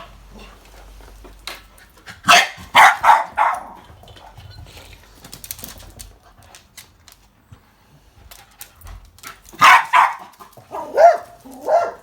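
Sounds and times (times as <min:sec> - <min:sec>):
dog barking: 0:02.2 - 0:03.8, 0:09.6 - 0:12.0.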